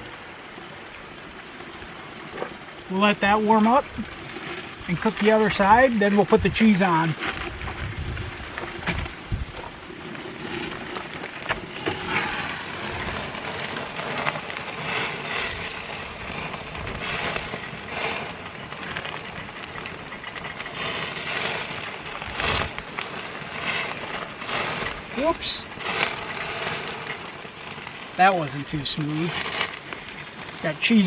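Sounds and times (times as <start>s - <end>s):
food sizzling on a grill: 0.0s - 31.0s
fat spitting crackles: 11.7s - 27.2s.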